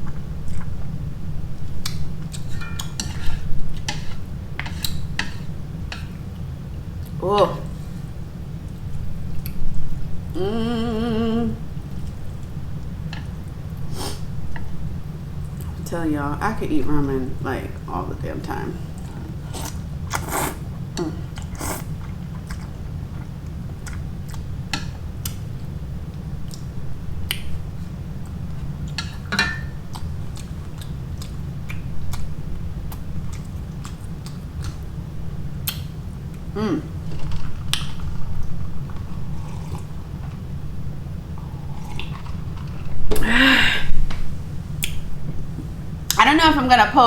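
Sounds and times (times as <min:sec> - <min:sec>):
low steady hum: 0:00.0 - 0:47.0
person chewing noodles: 0:19.1 - 0:24.6, 0:29.9 - 0:34.9, 0:38.9 - 0:40.4, 0:41.4 - 0:43.0.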